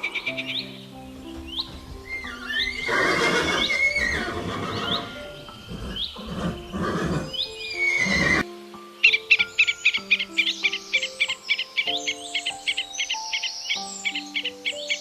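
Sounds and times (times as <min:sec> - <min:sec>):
light background music: 0:00.0 - 0:15.0
whinny-like animal call: 0:02.7 - 0:08.4.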